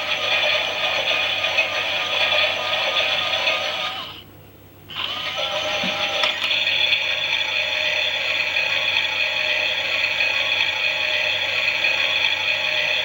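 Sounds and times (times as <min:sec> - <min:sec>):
toy motor whining with gear rattle: 0:00.0 - 0:04.2, 0:04.9 - 0:13.0.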